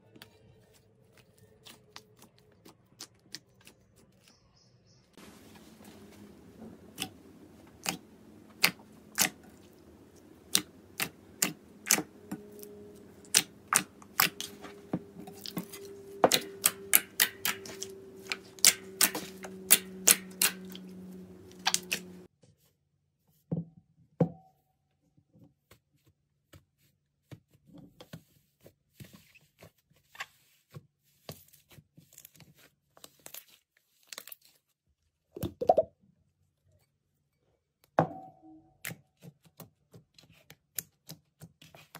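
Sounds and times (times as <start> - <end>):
steady low hum: 5.2 - 22.3
slime clicking and popping: 10.5 - 14.6.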